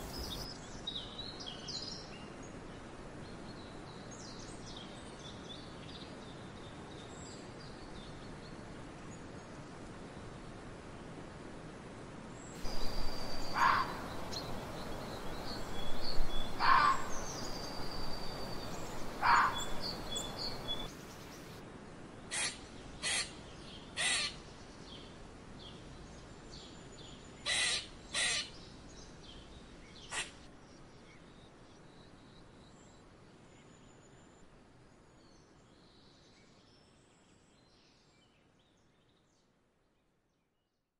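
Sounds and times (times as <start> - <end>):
birds twittering: 0.0 - 0.5, 12.6 - 21.6
fox barking: 12.6 - 14.5, 16.3 - 17.5, 18.6 - 20.9
lemurs calling: 12.6 - 20.9.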